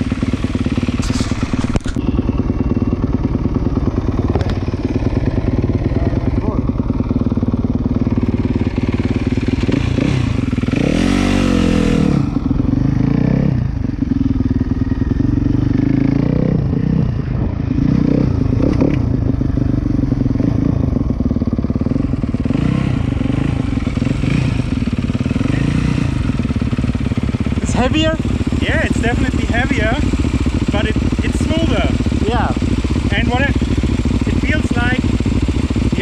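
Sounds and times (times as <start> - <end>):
dirt bike engine idling: 0.0 - 36.0
dirt bike engine revving: 0.0 - 36.0.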